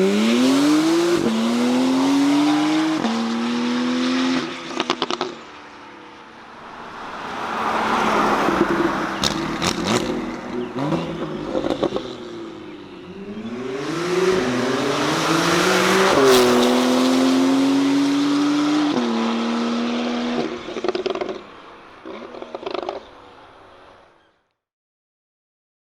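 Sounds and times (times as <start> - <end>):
sports car engine accelerating: 0.0 - 23.7
exhaust crackles: 6.3 - 17.8.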